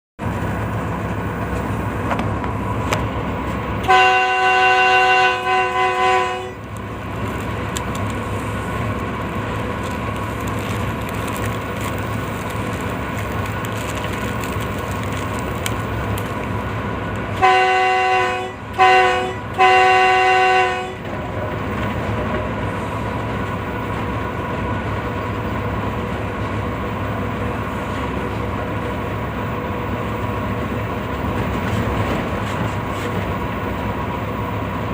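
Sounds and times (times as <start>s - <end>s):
train rumbling: 0.2s - 34.9s
train horn blasts: 3.8s - 6.7s, 17.4s - 21.1s.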